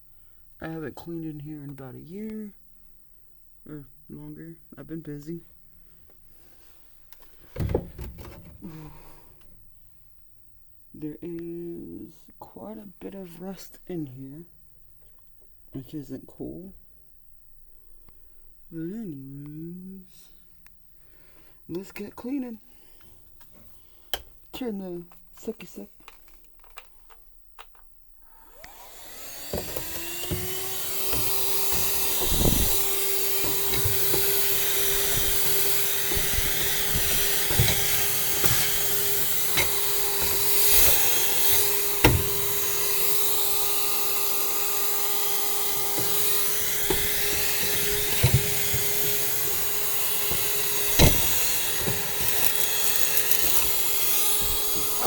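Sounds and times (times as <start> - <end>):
knocks and clicks: 7.6 - 8.7, 29.4 - 55.0
vacuum cleaner whine: 7.6 - 9.5, 28.3 - 55.0.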